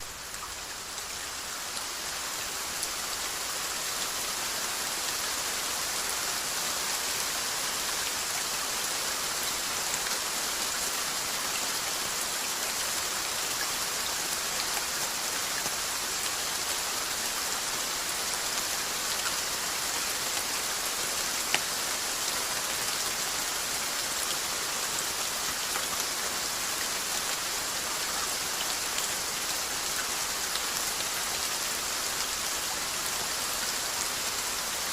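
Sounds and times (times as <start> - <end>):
rain patter: 0.0 - 34.9.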